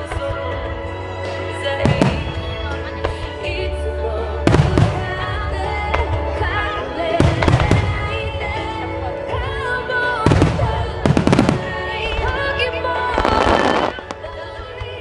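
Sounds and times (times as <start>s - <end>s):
music from loudspeakers: 0.0s - 15.0s
fireworks bursting with sharp bangs: 1.8s - 3.5s, 4.4s - 8.8s, 10.2s - 15.0s.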